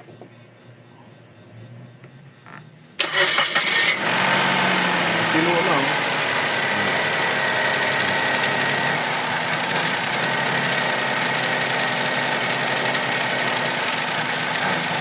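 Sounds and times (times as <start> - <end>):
car engine idling: 3.0 - 15.0.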